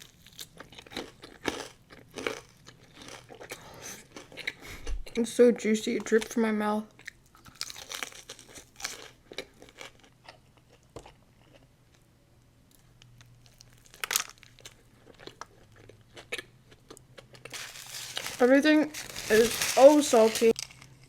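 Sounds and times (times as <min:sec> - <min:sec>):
chewing crunchy fried chicken: 0:00.0 - 0:05.2, 0:07.0 - 0:12.1, 0:12.7 - 0:21.0.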